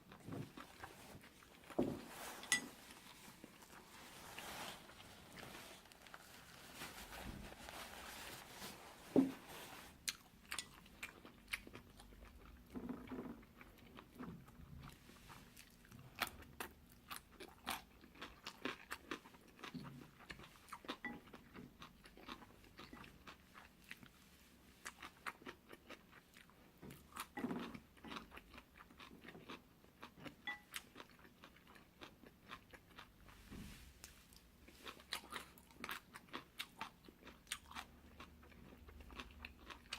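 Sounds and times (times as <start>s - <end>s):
chewing noodles: 9.9s - 24.2s, 24.8s - 33.4s, 34.0s - 39.9s.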